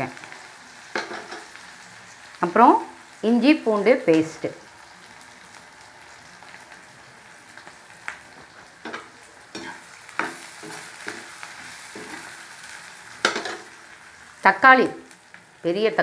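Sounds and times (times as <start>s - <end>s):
onions sizzling in hot oil: 0.0s - 16.0s
spoon scraping and knocking pan: 0.9s - 1.5s, 8.8s - 12.4s, 13.2s - 13.7s.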